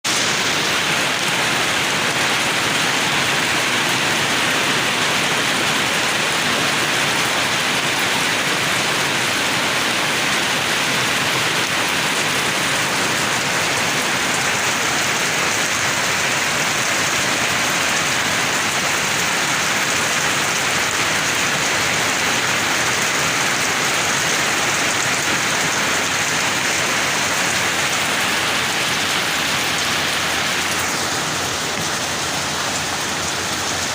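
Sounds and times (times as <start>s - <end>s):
heavy rain pattering: 0.1s - 33.9s.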